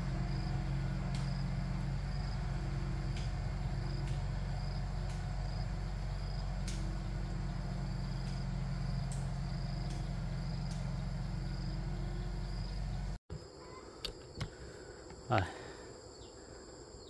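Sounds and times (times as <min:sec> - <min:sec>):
tractor engine rumbling: 0:00.0 - 0:13.2
high insect chirp: 0:00.0 - 0:17.0.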